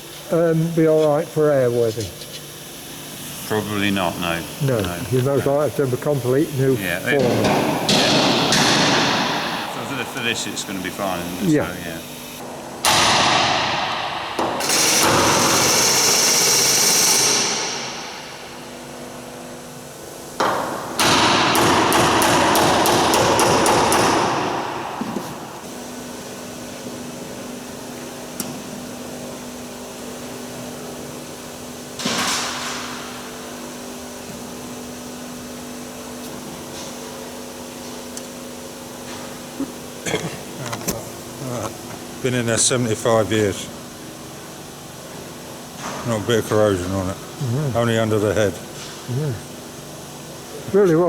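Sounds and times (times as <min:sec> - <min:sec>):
power tool running: 0:02.6 - 0:25.9.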